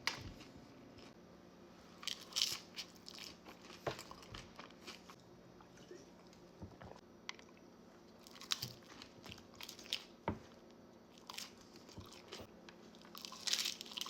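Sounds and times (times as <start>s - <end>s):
tortilla chips crunching: 2.0s - 5.2s, 8.2s - 10.2s, 11.1s - 14.0s.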